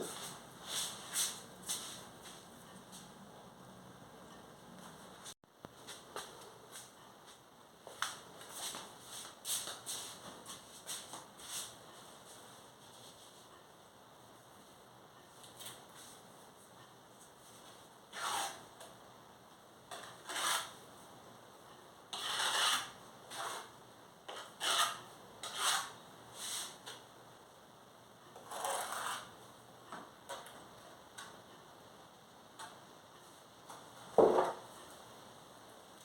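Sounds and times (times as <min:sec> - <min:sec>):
trowel scraping mortar on brick: 0:18.1 - 0:18.6, 0:20.0 - 0:20.8, 0:22.2 - 0:26.8, 0:28.4 - 0:29.4.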